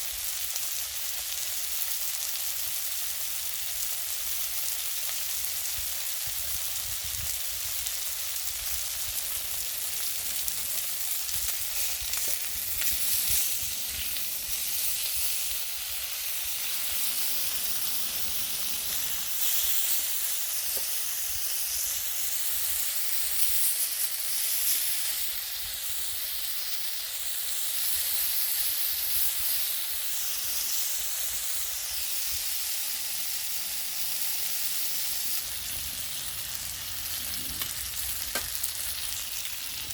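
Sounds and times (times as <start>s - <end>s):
clams sizzling on a grill: 0.0s - 39.9s
faint pops: 37.4s - 38.6s.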